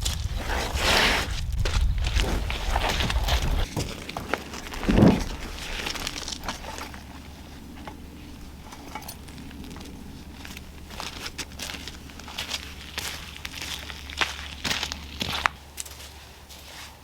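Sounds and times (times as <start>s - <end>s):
footsteps crunching and rustling: 0.0s - 17.0s.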